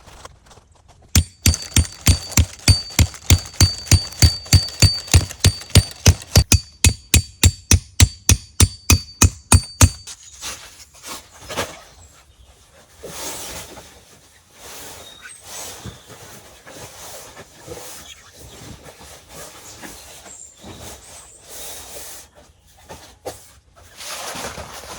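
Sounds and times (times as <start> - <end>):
hammering with metallic ring: 1.2 - 10.1.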